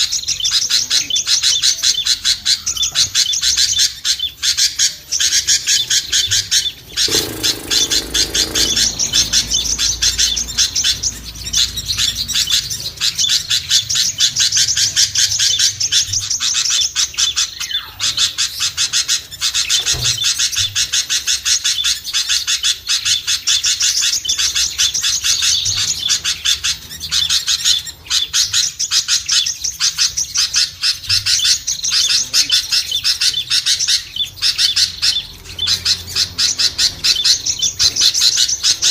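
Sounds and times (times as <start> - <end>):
songbirds chirping and twittering: 0.0 - 38.9.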